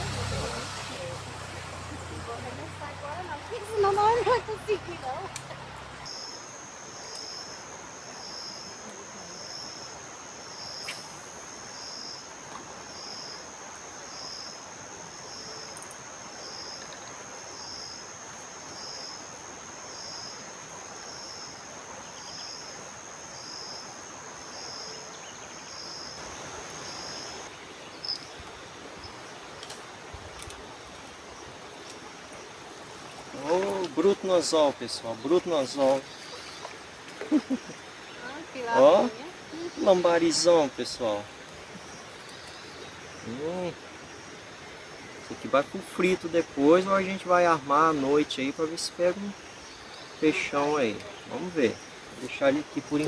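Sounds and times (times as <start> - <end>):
river rushing: 0.0 - 7.0, 25.6 - 53.0
insect trilling: 0.0 - 21.5, 33.1 - 53.0.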